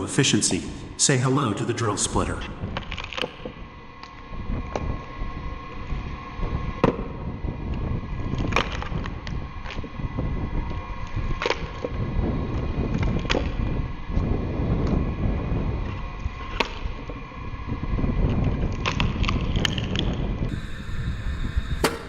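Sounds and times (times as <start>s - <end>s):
log splitter motor hum: 20.5s - 22.0s.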